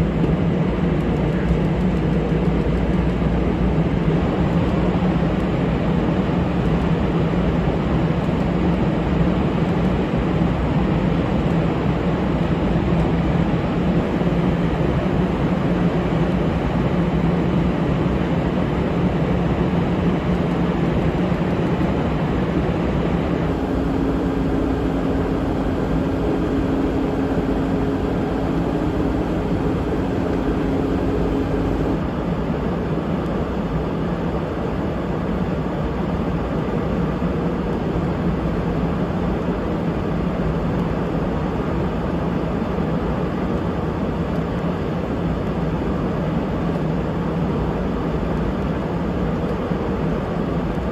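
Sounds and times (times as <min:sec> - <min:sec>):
steady hum: 0:00.0 - 0:40.0
jet engine roar: 0:00.0 - 0:44.5.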